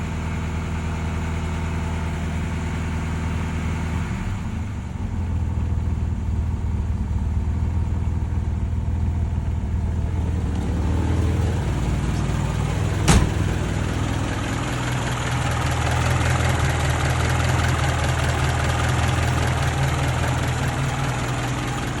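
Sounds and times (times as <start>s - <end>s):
engine idling: 0.0s - 22.0s
sharp crack: 10.4s - 14.0s.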